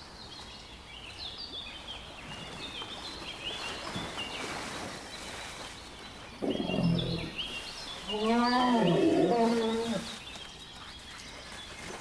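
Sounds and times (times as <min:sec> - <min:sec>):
small birds chirping: 0:00.2 - 0:12.0.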